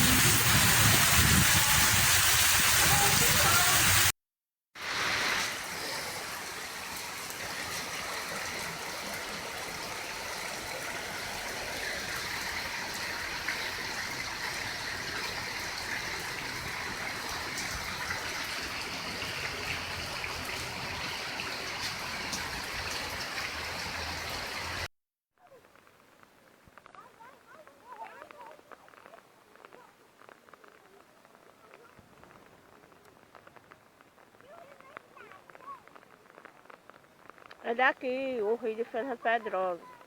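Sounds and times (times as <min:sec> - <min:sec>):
water rushing: 0:00.0 - 0:04.1, 0:04.8 - 0:24.9, 0:35.4 - 0:40.0.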